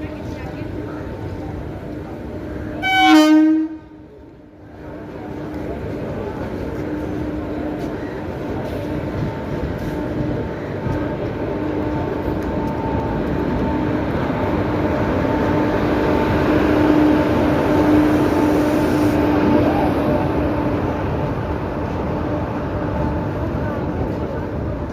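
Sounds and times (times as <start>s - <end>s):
train wheels rumbling on rail: 0.0s - 24.9s.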